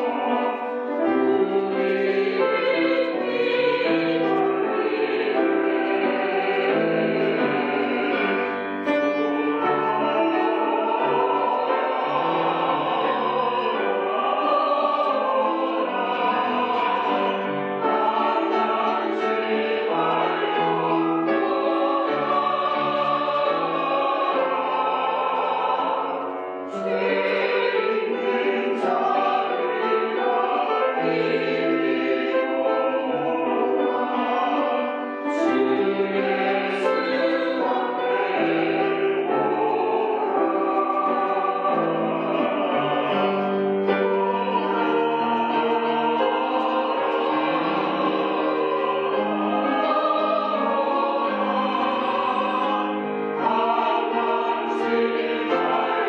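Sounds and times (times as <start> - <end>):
church choir singing a hymn: 0.0 - 56.0.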